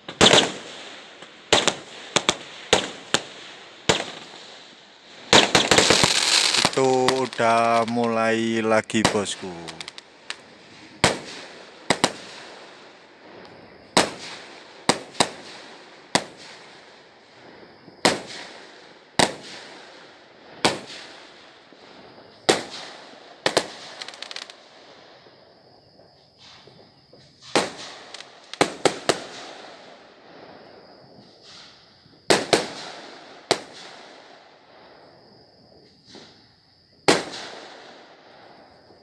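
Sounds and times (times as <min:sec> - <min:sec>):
fireworks bangs: 0:00.0 - 0:16.7, 0:26.5 - 0:29.9, 0:31.2 - 0:34.2, 0:37.0 - 0:38.5.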